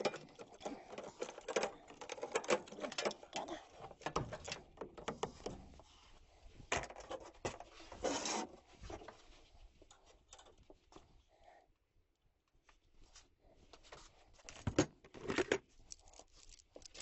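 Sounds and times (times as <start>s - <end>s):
short scrape: 8.0s - 8.6s.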